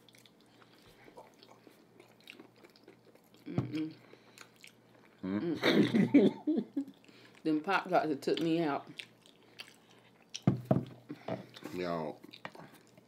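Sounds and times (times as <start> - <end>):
wet chewing and mouth clicks: 0.0 - 5.2, 8.3 - 10.6, 11.4 - 13.0.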